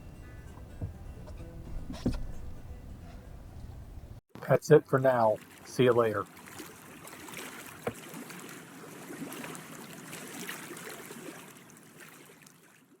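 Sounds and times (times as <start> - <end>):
water lapping and trickling: 4.4 - 13.0.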